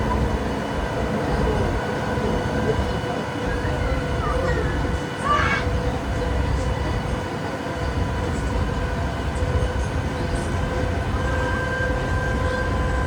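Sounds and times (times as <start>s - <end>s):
faint steady tones: 0.0s - 13.0s
tram rumbling in motion: 0.0s - 13.0s.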